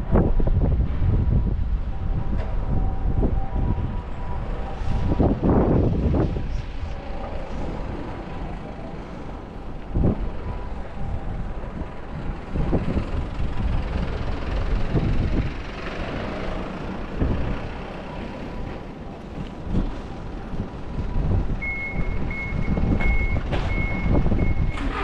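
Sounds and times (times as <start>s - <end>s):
low street rumble: 0.0s - 25.0s
wind buffeting microphone: 0.0s - 25.0s
reversing alarm beeping: 1.9s - 11.6s, 20.0s - 25.0s.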